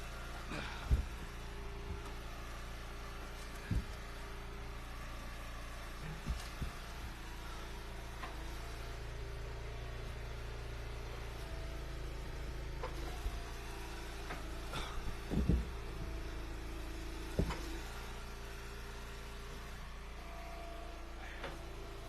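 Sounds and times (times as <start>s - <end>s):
wood splitter engine running: 0.0s - 22.0s
sharp knocks and cracks: 3.2s - 4.4s, 5.9s - 7.2s, 14.3s - 16.0s, 17.2s - 18.1s.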